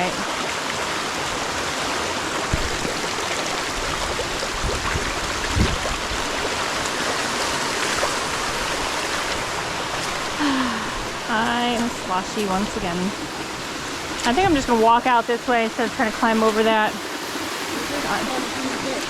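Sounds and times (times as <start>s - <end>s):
creek water rushing: 0.0s - 19.0s
low thumps: 2.5s - 3.0s.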